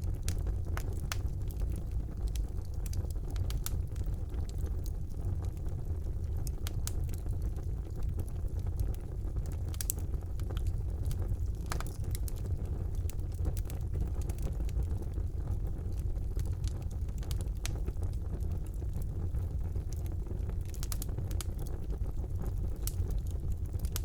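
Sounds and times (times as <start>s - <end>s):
fire crackling in a fireplace: 0.0s - 24.0s.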